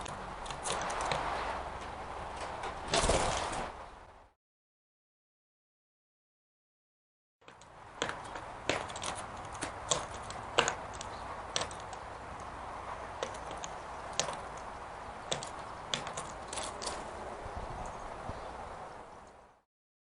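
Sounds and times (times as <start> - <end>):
bird pecking at peanuts: 0.0 - 1.2, 7.6 - 17.1.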